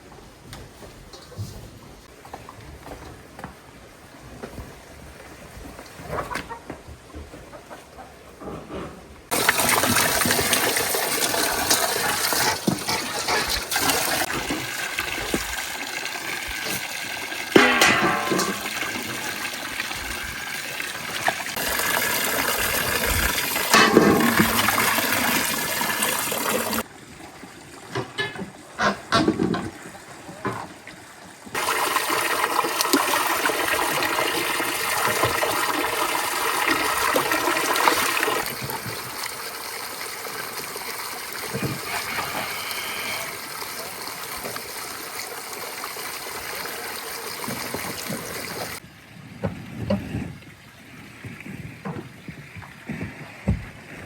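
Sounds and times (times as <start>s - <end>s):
water pouring: 9.3s - 26.9s, 31.5s - 48.8s.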